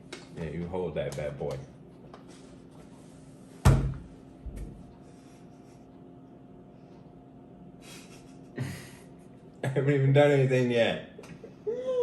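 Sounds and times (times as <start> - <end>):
stifled laughter through the nose: 7.8 - 9.3.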